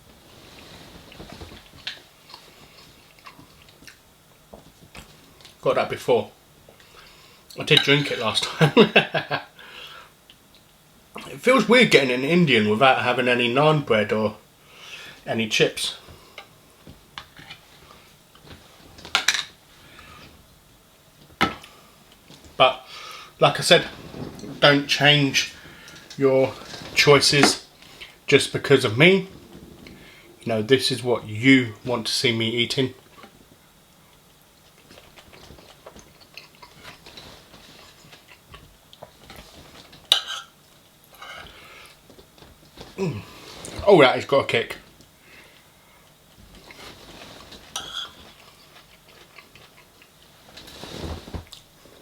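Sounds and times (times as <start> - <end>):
chewing: 0.6 - 4.0, 34.1 - 42.0, 46.5 - 50.4.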